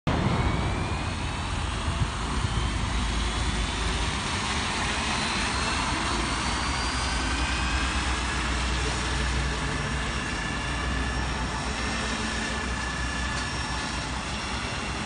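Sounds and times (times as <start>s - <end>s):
low rumble: 0.1s - 8.7s
thin rising whine: 0.1s - 15.0s
toy helicopter motors whirring: 1.6s - 15.0s.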